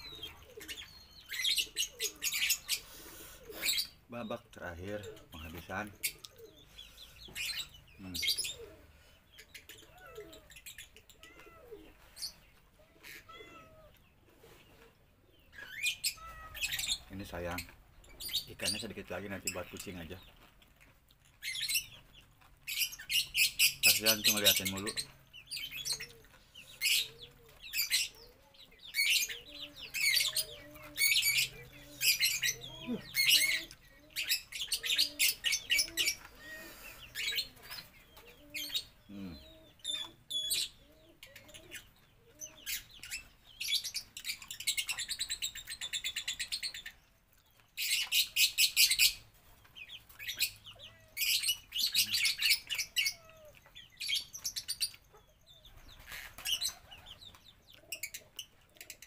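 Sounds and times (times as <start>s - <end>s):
soft low bird calls: 0.0s - 20.4s, 21.3s - 59.0s
songbird chattering trills: 22.7s - 47.0s.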